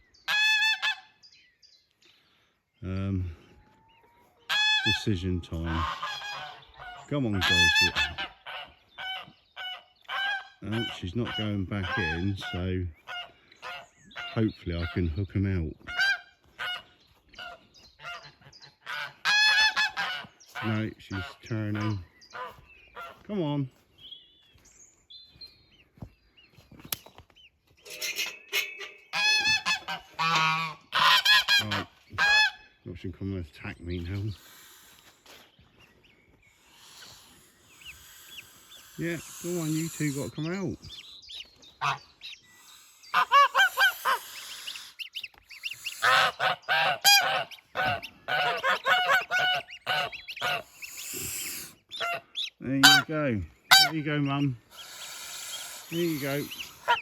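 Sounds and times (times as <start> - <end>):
goslings peeping: 0.0 - 1.4, 3.1 - 24.6, 25.2 - 57.0
geese honking loudly: 0.2 - 1.2, 4.4 - 23.5, 28.0 - 32.9, 36.6 - 57.0.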